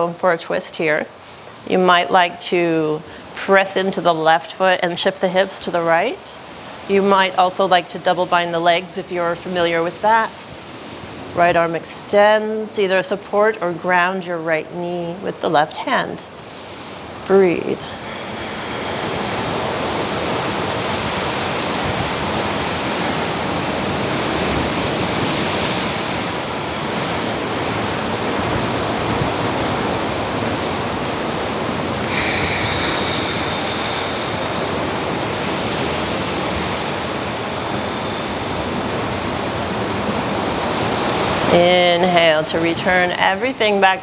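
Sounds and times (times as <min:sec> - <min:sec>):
ocean surf breaking: 0:16.4 - 0:44.0.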